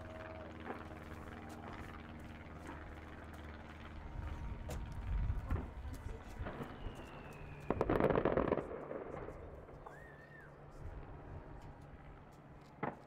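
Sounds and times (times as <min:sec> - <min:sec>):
steady low hum: 0:00.0 - 0:13.0
fireworks cracking: 0:05.5 - 0:09.4
fireworks deep booms: 0:07.7 - 0:09.2.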